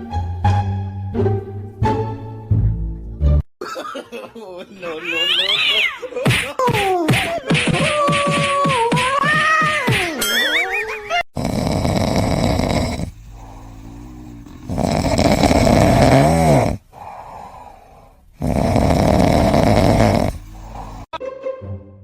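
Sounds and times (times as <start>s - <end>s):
loud snoring: 11.4s - 21.1s
quiet breathing: 11.6s - 21.1s.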